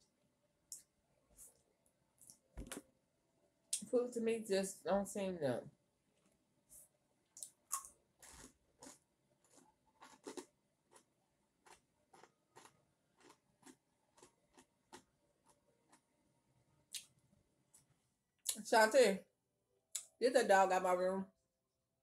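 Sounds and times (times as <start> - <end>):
person chewing food: 7.4 - 16.1.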